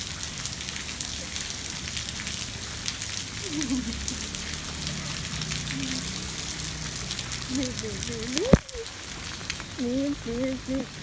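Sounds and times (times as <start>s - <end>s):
steady rain falling: 0.0s - 11.0s
child's voice: 7.5s - 8.9s, 9.8s - 11.0s.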